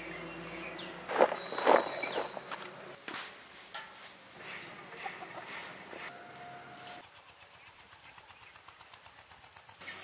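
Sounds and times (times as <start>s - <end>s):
bird calls: 0.0s - 3.0s
faint outdoor background: 0.0s - 10.0s.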